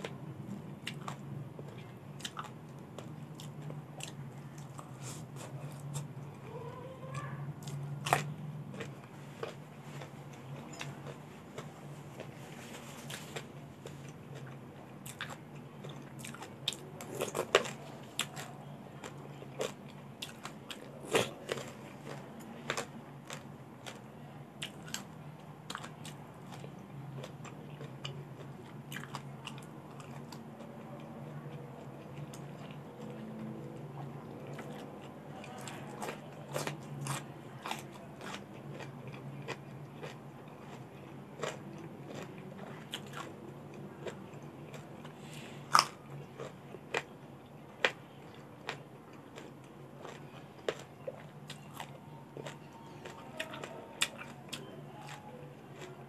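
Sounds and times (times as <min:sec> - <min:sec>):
chewing crunchy raw vegetables: 0:00.0 - 0:56.0.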